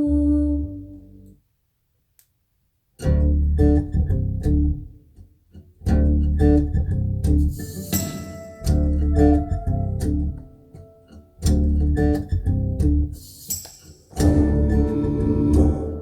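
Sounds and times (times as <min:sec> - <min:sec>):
plucked guitar over deep bass: 0:03.0 - 0:04.9, 0:05.8 - 0:07.6, 0:08.5 - 0:13.2, 0:14.2 - 0:16.0
recorded music through loudspeakers: 0:14.2 - 0:16.0.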